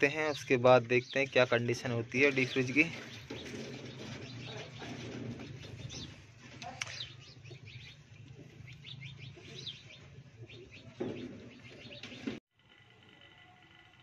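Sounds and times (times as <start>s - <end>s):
small birds chirping: 0.0s - 12.4s
thump: 11.0s - 11.5s.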